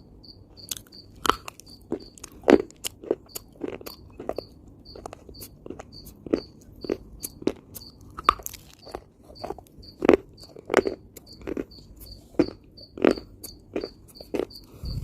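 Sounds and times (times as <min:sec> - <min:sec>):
cricket chirping: 0:00.0 - 0:02.3, 0:03.3 - 0:15.0
chewing crunchy dried earth: 0:00.6 - 0:15.0.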